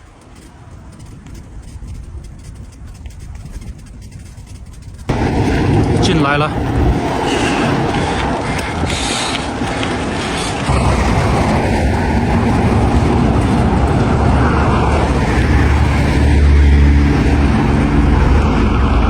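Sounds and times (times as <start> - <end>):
motor traffic rumble: 0.0 - 19.0
wind on microphone: 0.0 - 19.0
vehicle passing: 4.6 - 19.0.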